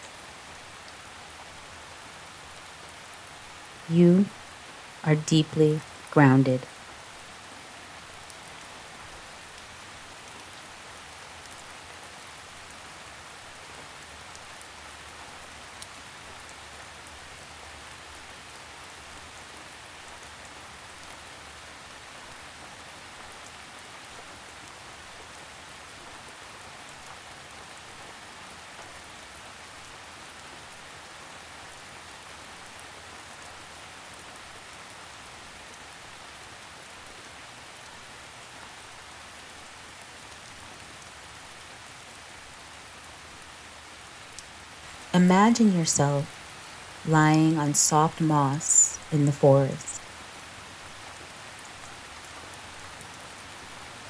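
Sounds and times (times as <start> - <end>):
steady rainfall hiss: 0.0 - 54.0
rain drop ticks: 44.2 - 48.0.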